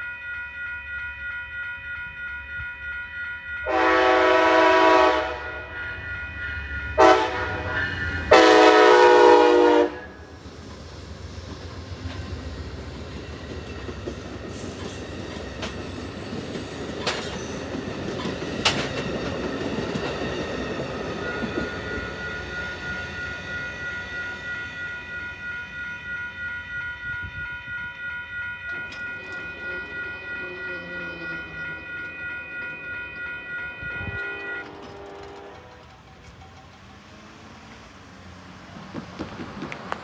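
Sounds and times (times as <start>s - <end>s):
crossing bells dinging: 0.0s - 39.0s
train wheels clattering: 10.3s - 23.5s, 34.2s - 40.0s.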